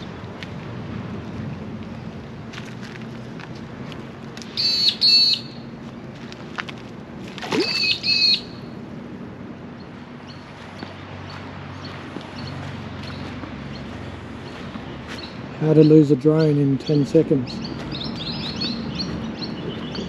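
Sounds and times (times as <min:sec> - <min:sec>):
bird calling: 0:04.4 - 0:05.7, 0:07.5 - 0:08.8, 0:11.8 - 0:20.0.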